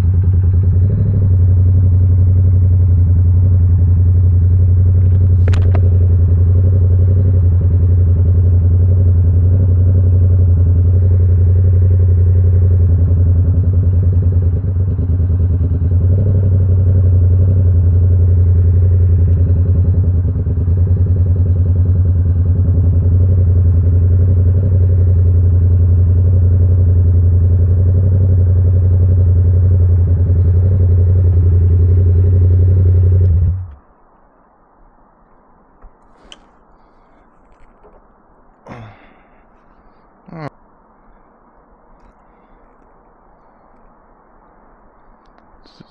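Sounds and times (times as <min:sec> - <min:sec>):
motorcycle engine idling: 0:00.0 - 0:33.8.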